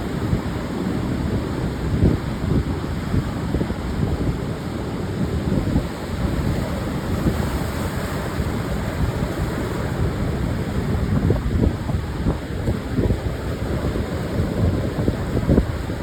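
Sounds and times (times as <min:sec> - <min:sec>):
surf washing onto beach: 0:00.0 - 0:16.0
wind gusting against microphone: 0:00.0 - 0:16.0.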